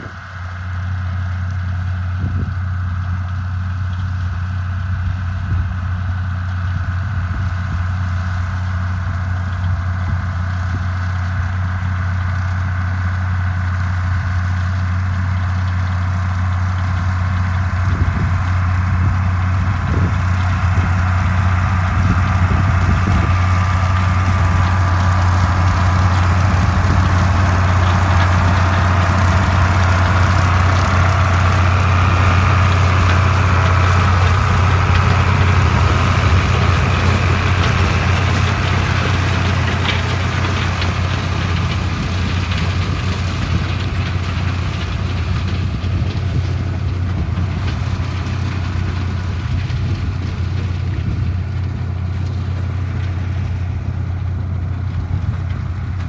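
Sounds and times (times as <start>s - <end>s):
farm machine engine running: 0.0s - 56.0s.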